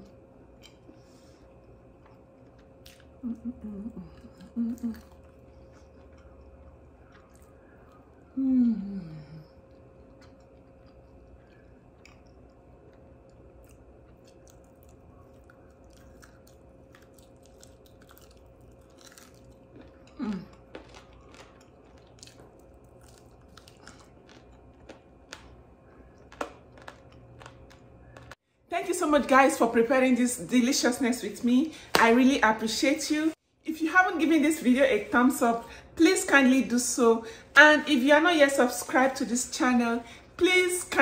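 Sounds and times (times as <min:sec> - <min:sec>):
falling humming sound: 0:00.0 - 0:28.4
person chewing and crunching: 0:01.6 - 0:08.2, 0:09.5 - 0:28.4.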